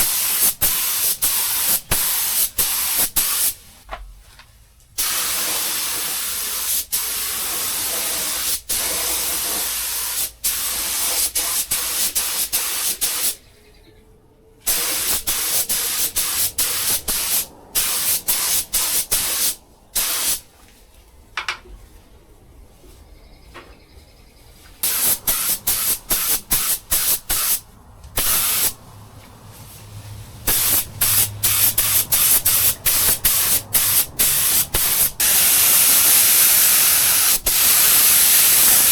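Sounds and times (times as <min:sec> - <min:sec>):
paint spray gun hissing: 0:00.0 - 0:03.6, 0:05.0 - 0:13.4, 0:14.7 - 0:20.4, 0:24.8 - 0:27.6, 0:28.2 - 0:28.8, 0:30.4 - 0:38.9.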